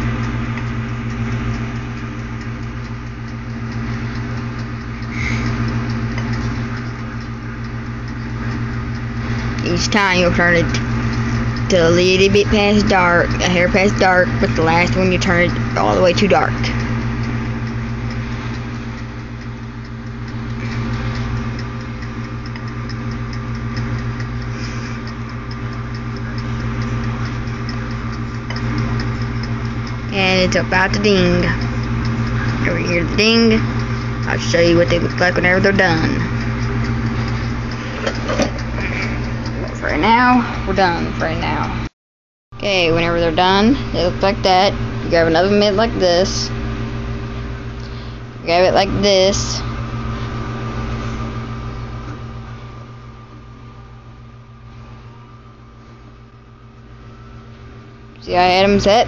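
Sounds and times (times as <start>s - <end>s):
wind-up timer ticking: 0.0s - 41.7s
toaster oven humming: 0.0s - 41.9s, 42.6s - 59.0s.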